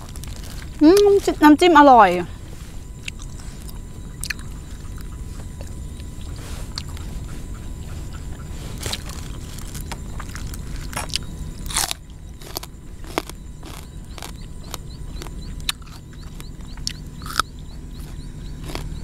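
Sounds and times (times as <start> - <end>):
person chewing raw vegetables: 0.0 - 1.3, 2.9 - 19.0
sharp crunches: 8.3 - 19.0.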